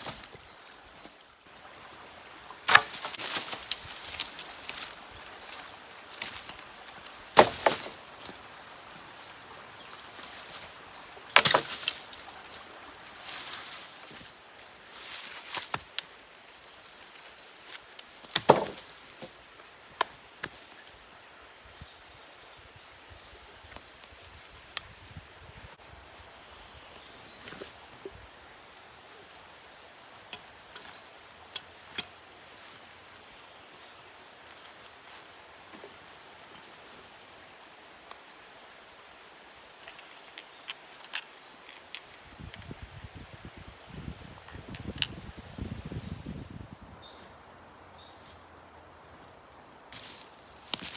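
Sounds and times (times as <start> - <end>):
outdoor background hiss: 0.0 - 50.9
sharp wood cracks: 2.6 - 8.4, 11.3 - 12.3, 17.7 - 19.3, 50.0 - 50.9.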